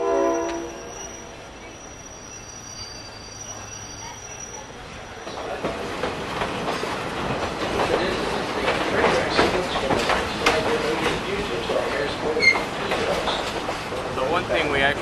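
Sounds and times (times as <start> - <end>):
train rumbling on rails: 0.0 - 15.0
wheels clacking over track: 4.4 - 15.0.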